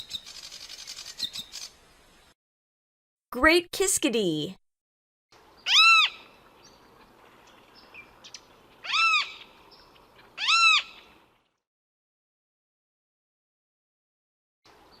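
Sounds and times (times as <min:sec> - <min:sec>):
bird harsh calls: 0:00.0 - 0:01.8, 0:05.6 - 0:06.8, 0:07.5 - 0:11.1.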